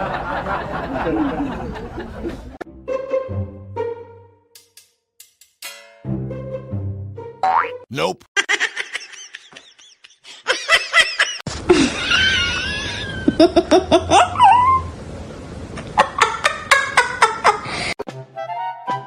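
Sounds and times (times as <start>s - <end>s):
people laughing: 0.0s - 2.6s, 8.4s - 14.6s, 15.9s - 17.6s.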